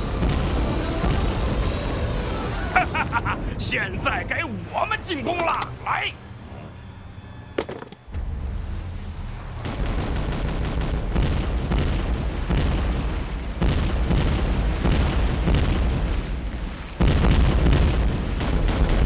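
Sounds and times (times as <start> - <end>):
cannon fire and explosions: 0.0 - 5.5, 8.0 - 19.0
low rumble: 6.2 - 19.0.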